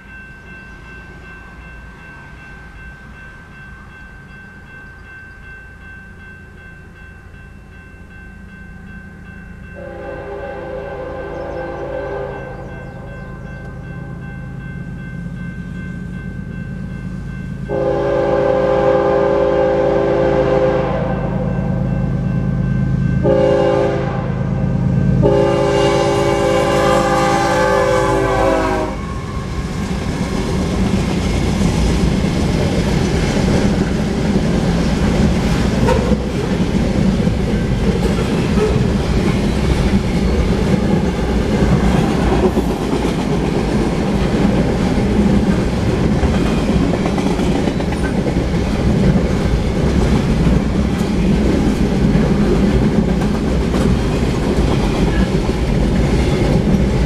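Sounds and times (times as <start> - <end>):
freight train rumbling past: 0.0 - 57.0
locomotive horn chord: 9.8 - 14.6, 17.6 - 21.9, 23.2 - 29.6.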